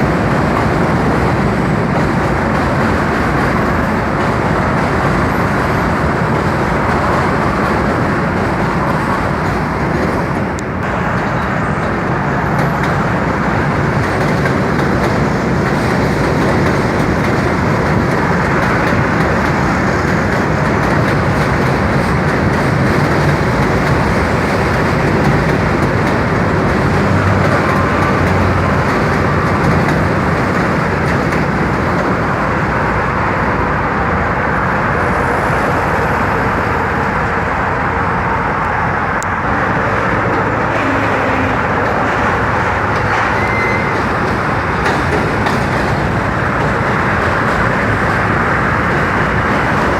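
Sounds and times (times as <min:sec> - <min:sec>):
subway train wheels rumbling on rail: 0:00.0 - 0:49.9.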